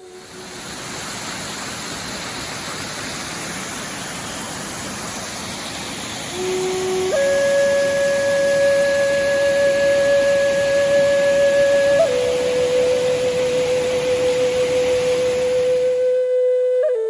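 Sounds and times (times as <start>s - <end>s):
waterfall rushing: 0.0s - 16.4s
flute melody: 6.3s - 17.0s.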